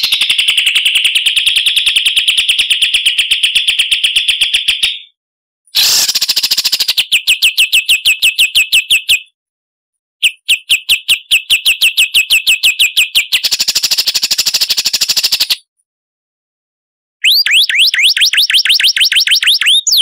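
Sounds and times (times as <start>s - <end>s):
buzzy bird trill: 5.8s - 7.1s.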